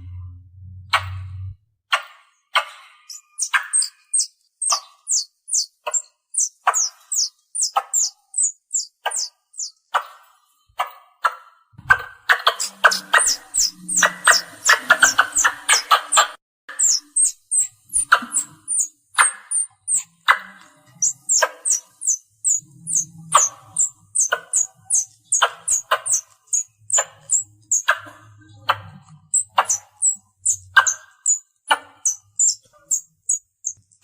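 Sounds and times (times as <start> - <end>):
squirrel chirping: 2.6 - 10.2, 11.9 - 34.0.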